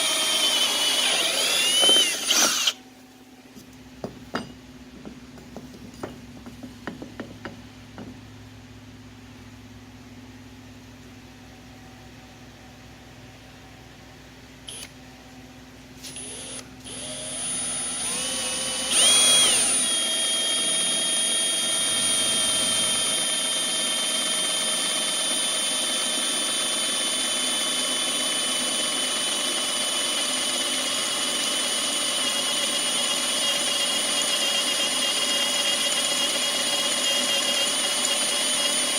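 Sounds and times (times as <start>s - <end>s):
electric drill whining: 0.0s - 2.8s, 14.7s - 14.9s, 16.0s - 38.9s.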